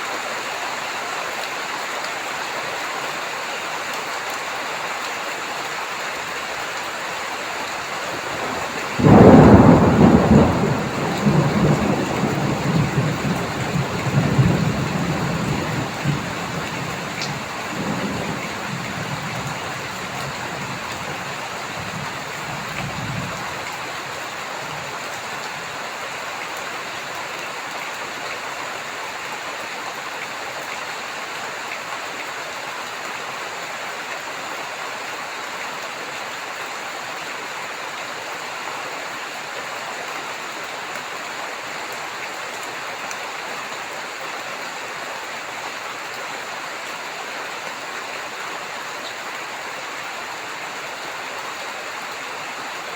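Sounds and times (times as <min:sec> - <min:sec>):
heavy rain: 0:00.0 - 0:52.9
low thunder rumble: 0:08.1 - 0:23.8.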